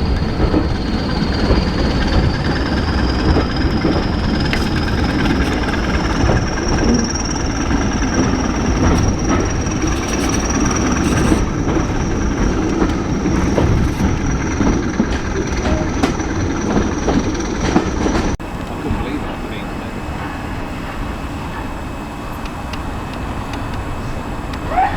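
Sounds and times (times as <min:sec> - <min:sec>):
clicks over rail joints: 0:00.0 - 0:19.1
train wheels rumbling on rails: 0:00.0 - 0:24.9.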